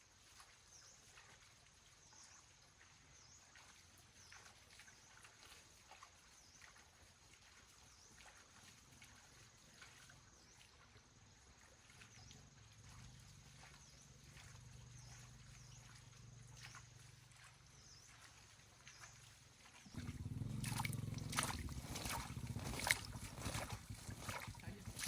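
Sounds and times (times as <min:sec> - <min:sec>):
faint low hum: 0:19.9 - 0:25.0.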